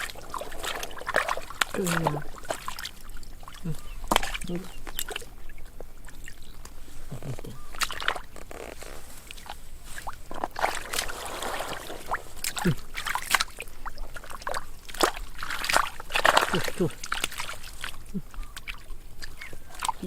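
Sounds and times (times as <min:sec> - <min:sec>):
shallow water sloshing and splashing: 0:00.0 - 0:20.0.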